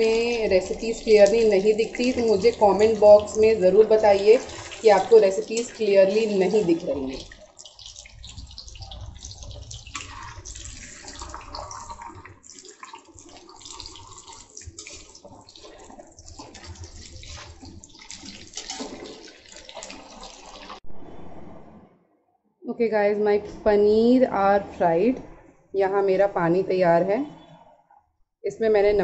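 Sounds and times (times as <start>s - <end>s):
paneer sizzling in hot oil: 0.0s - 20.8s.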